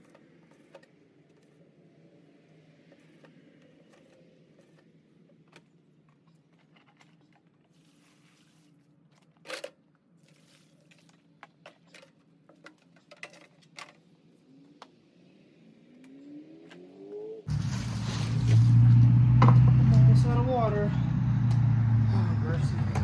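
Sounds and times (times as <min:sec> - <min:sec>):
low hum: 0:17.5 - 0:23.0.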